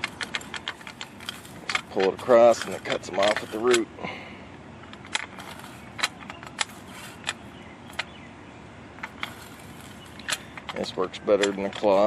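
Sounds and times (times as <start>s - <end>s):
hoe blade clicking in soil: 0.0s - 3.9s, 9.0s - 12.0s.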